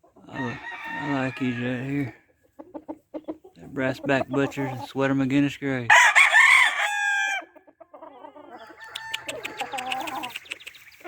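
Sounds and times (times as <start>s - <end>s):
chickens clucking: 0.0s - 5.7s, 7.2s - 11.0s
rooster crowing: 0.3s - 1.9s, 5.9s - 7.5s, 8.5s - 10.3s.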